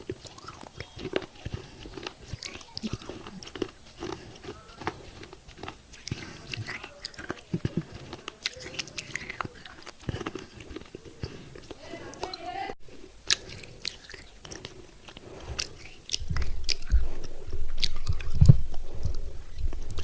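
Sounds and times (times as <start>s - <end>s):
crunching broken clay pot: 0.0s - 11.8s
chewing: 0.0s - 20.0s.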